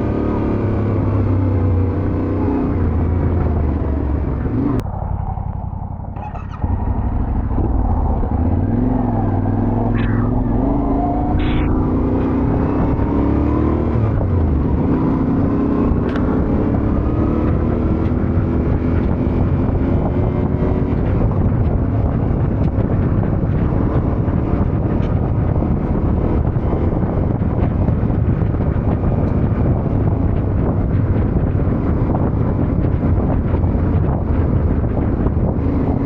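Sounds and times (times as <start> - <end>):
heavy wind noise on microphone: 0.0 - 36.0
motorcycle engine accelerating: 0.0 - 36.0.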